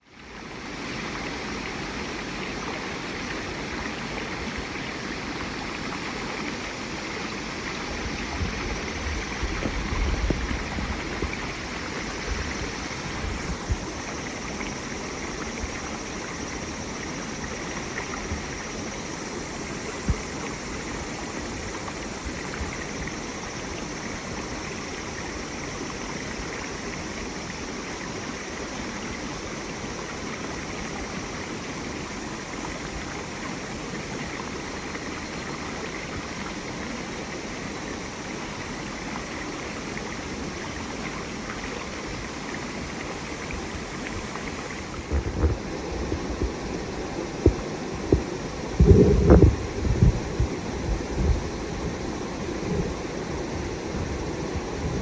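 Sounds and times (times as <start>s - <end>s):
running water stream: 0.0s - 55.0s
low thumps: 47.4s - 51.5s.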